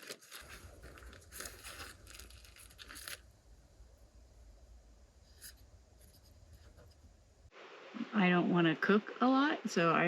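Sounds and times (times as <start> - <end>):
food packaging crinkling and tearing: 0.0 - 3.4.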